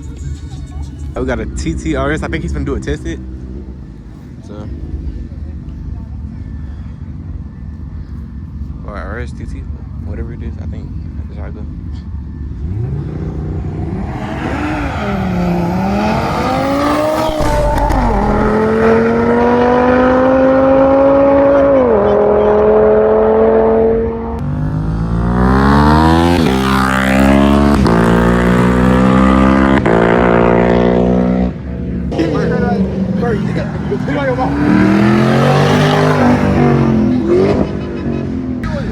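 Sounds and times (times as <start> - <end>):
car engine revving and accelerating: 12.5 - 38.9.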